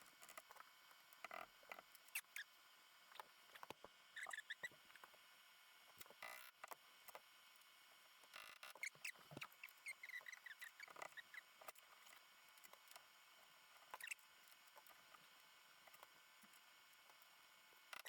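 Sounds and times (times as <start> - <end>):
short high squeaks: 4.2 - 4.8, 8.4 - 11.5, 14.0 - 14.2.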